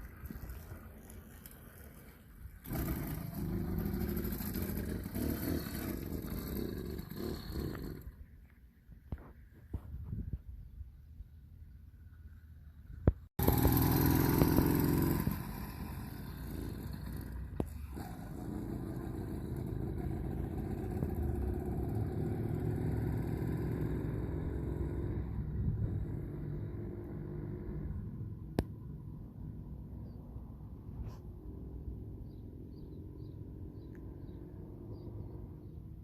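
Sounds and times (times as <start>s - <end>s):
small two-stroke engine droning: 0.0s - 8.3s, 13.4s - 29.4s.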